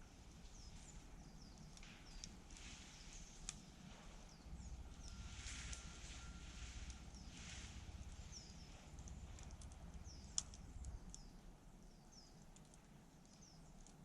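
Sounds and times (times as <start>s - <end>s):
campfire crackling and popping: 0.0s - 3.8s, 6.8s - 14.0s
small bird chirping: 0.0s - 14.0s.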